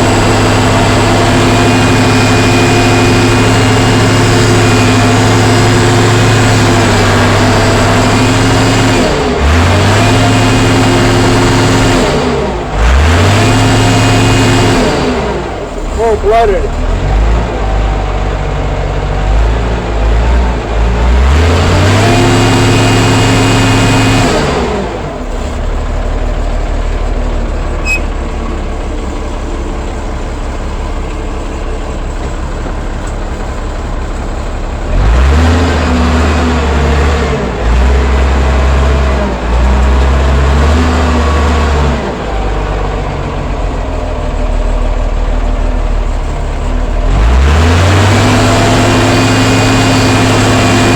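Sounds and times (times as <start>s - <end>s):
diesel engine revving: 0.0s - 50.9s.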